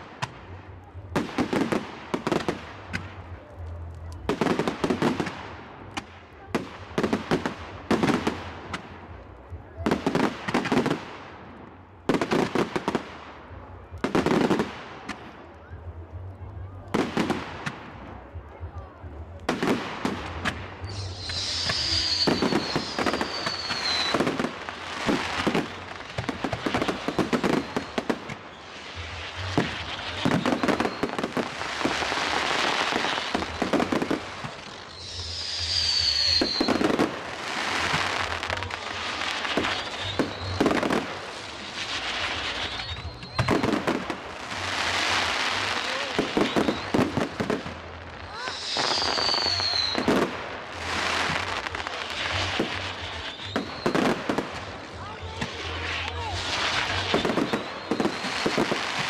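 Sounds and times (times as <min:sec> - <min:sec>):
fireworks banging and crackling: 0:00.0 - 0:59.0
whistling fireworks: 0:19.5 - 0:59.0.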